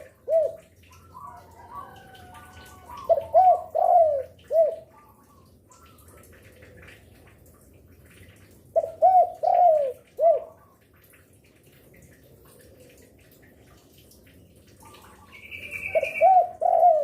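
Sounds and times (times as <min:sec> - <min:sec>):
dove cooing: 0:00.0 - 0:05.5, 0:08.7 - 0:10.8, 0:14.9 - 0:17.0.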